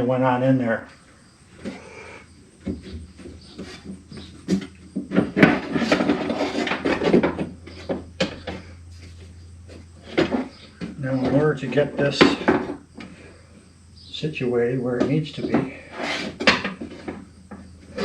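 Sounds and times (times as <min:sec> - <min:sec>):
faint low hum: 0:00.0 - 0:18.0
clunks and scraping of metal parts: 0:02.7 - 0:13.6, 0:15.0 - 0:18.0.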